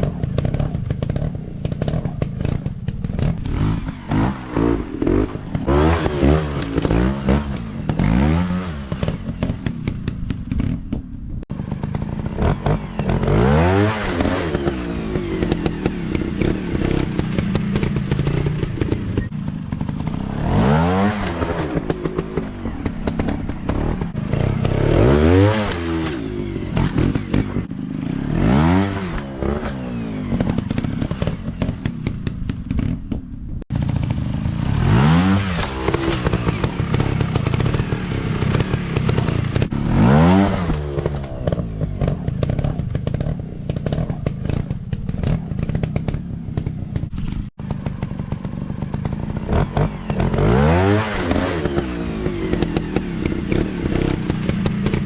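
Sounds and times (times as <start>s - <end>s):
rattling and knocks: 0.0s - 12.5s, 29.1s - 33.6s
dirt bike engines revving: 0.0s - 55.0s.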